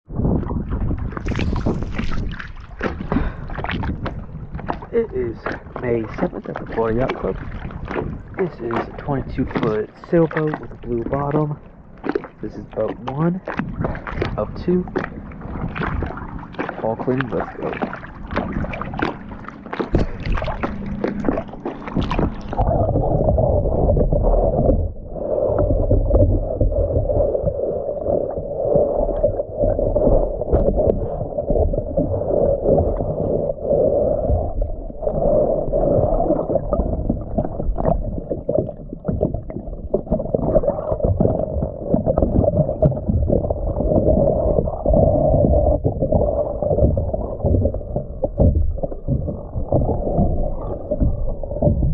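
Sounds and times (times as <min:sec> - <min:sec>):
gurgling exhaled bubbles: 0:00.1 - 0:51.9
scrubbing strokes on hull: 0:00.6 - 0:51.9
regulator breathing underwater: 0:03.1 - 0:03.6.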